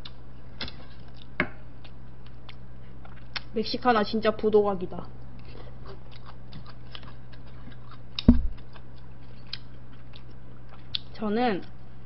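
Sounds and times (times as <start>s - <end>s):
person chewing: 0.0s - 3.5s, 5.2s - 11.1s
low electrical hum: 0.0s - 12.0s
loud thump: 8.3s - 8.6s.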